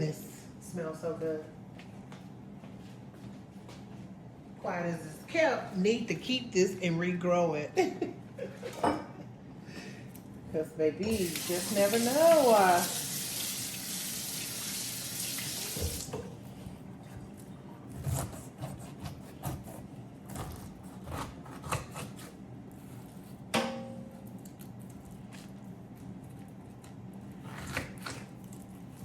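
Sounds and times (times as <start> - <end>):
tap running into sink: 14.6 - 16.3.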